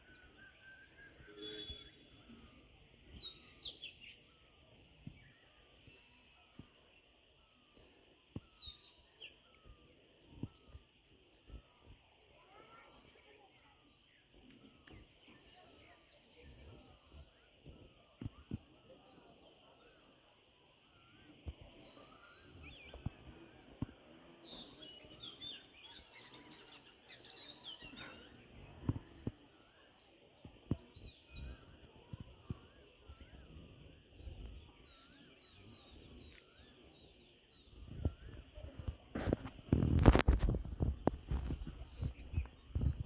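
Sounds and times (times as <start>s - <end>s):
birds chirping and twittering: 0.0s - 43.0s.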